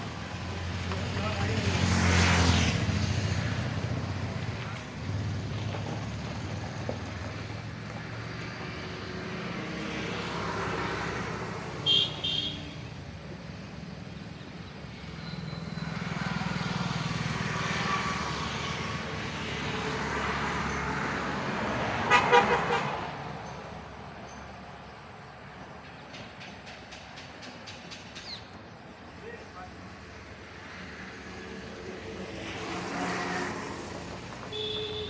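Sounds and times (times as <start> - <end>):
vehicles passing: 0.0 - 35.0
short horn beeps: 34.5 - 35.0.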